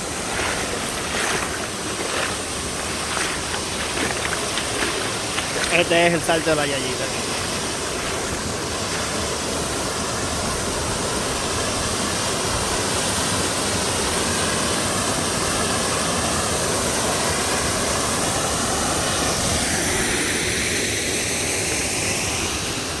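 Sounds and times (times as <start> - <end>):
waterfall pouring: 0.0 - 13.5.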